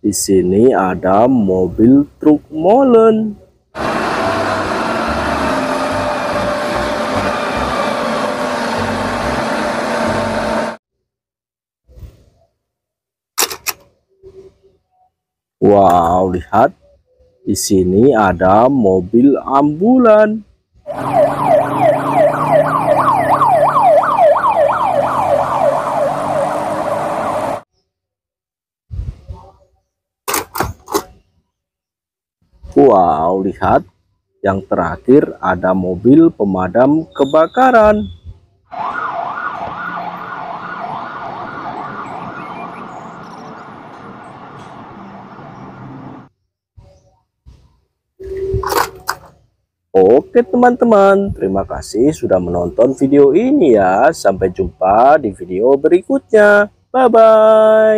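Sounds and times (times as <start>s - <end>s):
truck engine running: 3.8s - 10.8s, 41.2s - 46.3s
ambulance siren yelping: 20.9s - 27.6s, 38.7s - 46.3s.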